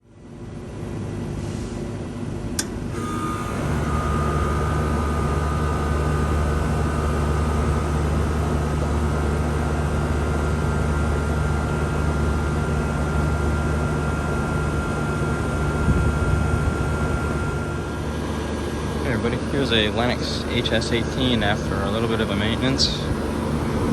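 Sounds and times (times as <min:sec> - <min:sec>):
air conditioner humming: 0:00.0 - 0:23.9
air conditioner switch click: 0:02.6 - 0:03.2
rising whine: 0:02.6 - 0:23.9.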